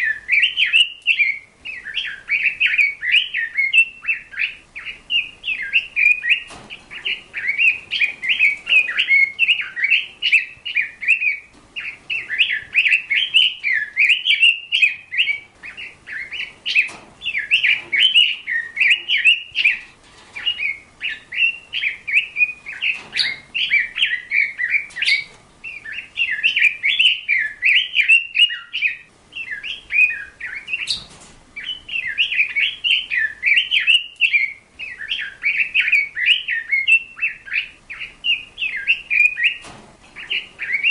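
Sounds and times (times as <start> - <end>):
small bird chattering warble: 0.0 - 40.9.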